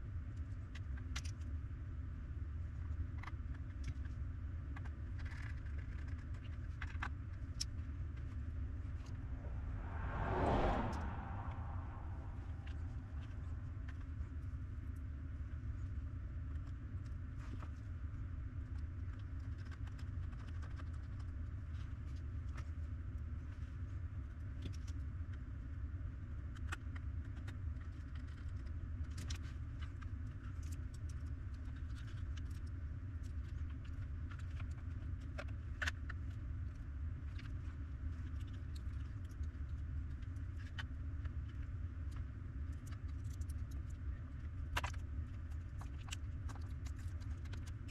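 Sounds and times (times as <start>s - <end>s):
low hum: 8.4s - 15.8s.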